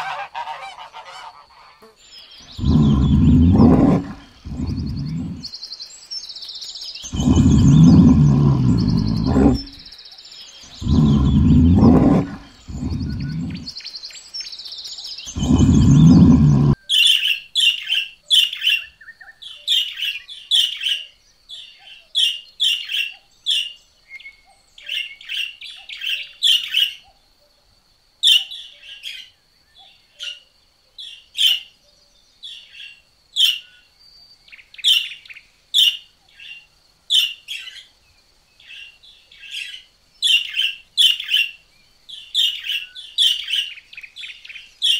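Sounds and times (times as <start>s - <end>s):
bear growling: 2.4s - 5.5s, 7.0s - 9.9s, 10.7s - 13.8s, 15.3s - 16.8s.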